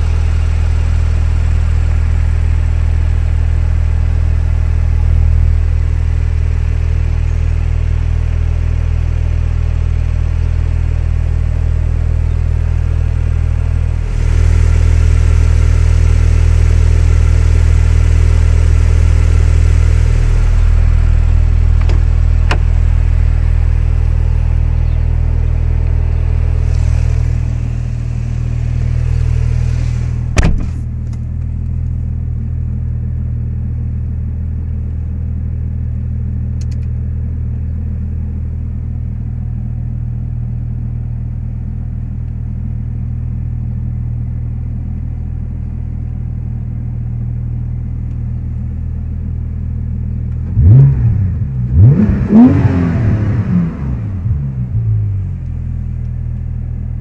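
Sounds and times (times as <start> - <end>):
car engine idling: 0.0 - 57.0
sharp thump: 30.3 - 30.9.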